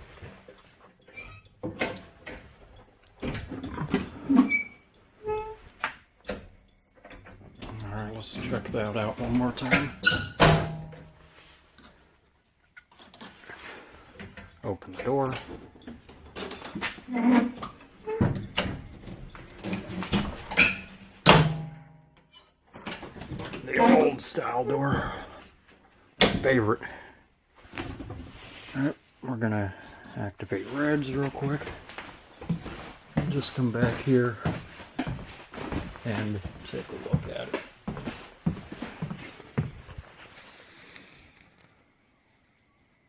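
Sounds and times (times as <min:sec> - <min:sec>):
door squeaks: 0:03.2 - 0:05.6, 0:09.6 - 0:10.9, 0:15.0 - 0:15.7, 0:17.0 - 0:18.8, 0:22.7 - 0:25.2
bus door clunks and rattles: 0:09.7 - 0:11.2, 0:18.2 - 0:21.8.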